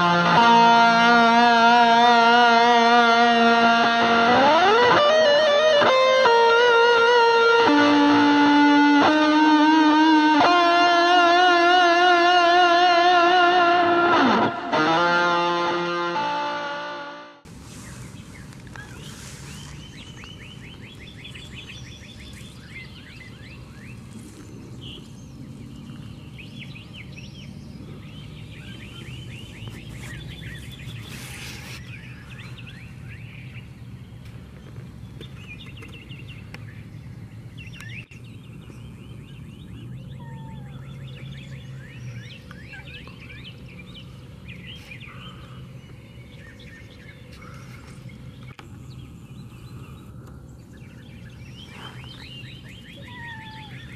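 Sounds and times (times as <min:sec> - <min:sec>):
birds chirping: 0:00.0 - 0:16.8, 0:17.4 - 0:53.9
steady low hum: 0:15.4 - 0:53.9.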